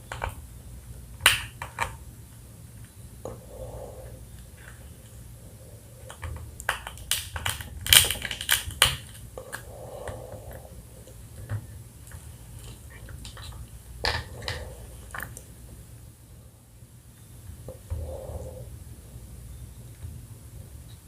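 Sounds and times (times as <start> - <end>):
crab shell crunching: 6.1 - 10.6.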